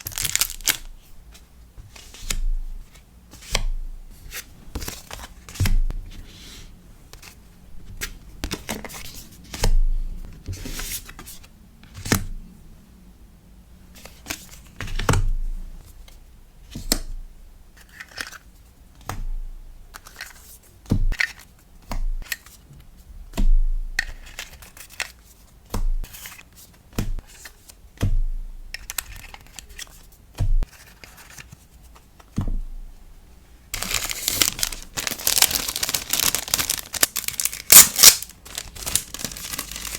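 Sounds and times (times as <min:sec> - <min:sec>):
continuous crinkling: 0:00.0 - 0:00.9, 0:33.7 - 0:39.9
paper and plastic rustling: 0:00.0 - 0:03.6, 0:28.8 - 0:32.4, 0:33.7 - 0:39.9.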